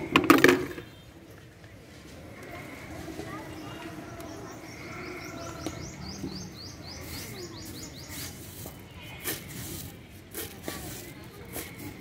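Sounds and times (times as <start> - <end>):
plastic bucket knocks: 0.1 - 0.9
small bird calling: 2.3 - 9.9.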